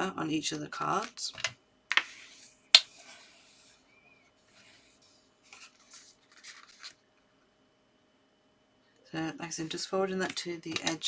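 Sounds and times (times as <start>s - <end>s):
paper scraping strokes: 2.0s - 7.0s
soft rubbing of paper: 2.1s - 7.0s.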